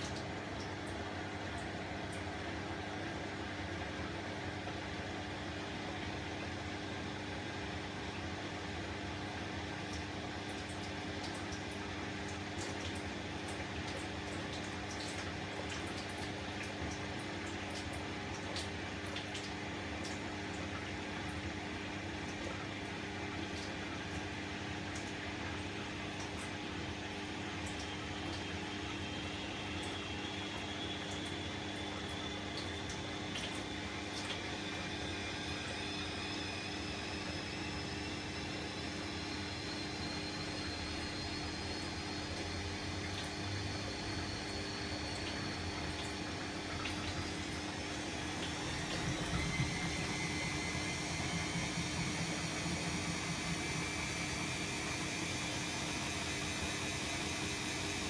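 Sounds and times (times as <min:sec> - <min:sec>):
washing machine hum: 0:00.0 - 0:58.0
water splashing inside machine: 0:09.8 - 0:58.0
faint high whine: 0:47.2 - 0:58.0.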